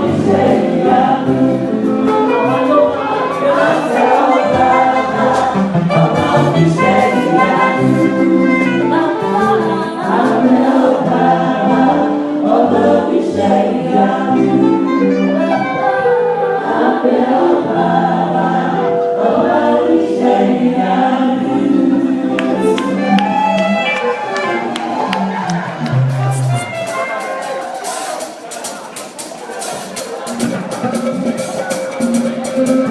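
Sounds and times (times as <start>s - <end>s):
choir singing an anthem: 0.0s - 25.4s
instrumental accompaniment: 0.0s - 32.9s.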